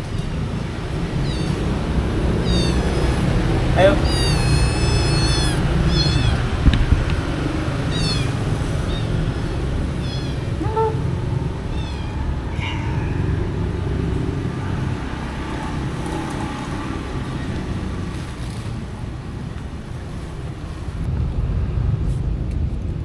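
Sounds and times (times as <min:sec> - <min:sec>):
cats meowing: 0:00.0 - 0:16.8
market background hum: 0:00.0 - 0:23.0.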